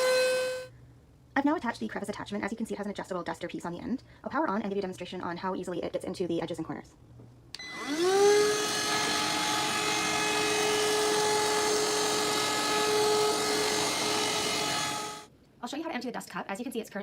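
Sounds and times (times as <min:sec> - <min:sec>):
handheld vacuum cleaner whine: 0:00.0 - 0:00.7, 0:07.6 - 0:15.3.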